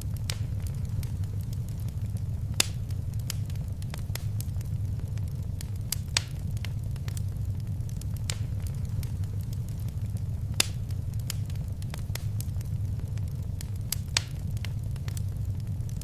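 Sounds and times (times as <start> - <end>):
fire crackles and pops: 0.0 - 16.0
low rumble of flames: 0.0 - 16.0.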